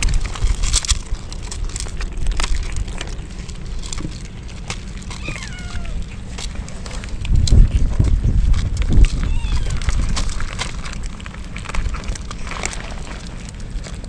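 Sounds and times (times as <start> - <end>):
low rumble: 0.0 - 14.0
raindrops pattering: 0.0 - 14.0
kitten meowing: 5.1 - 6.1, 9.1 - 9.9.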